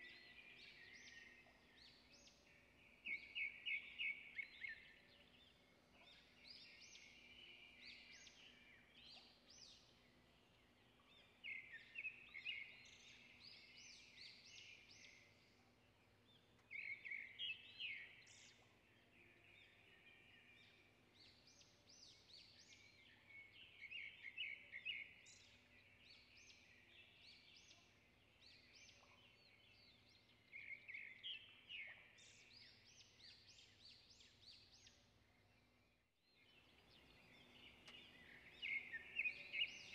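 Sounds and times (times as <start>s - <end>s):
small songbird twittering: 37.0s - 39.9s.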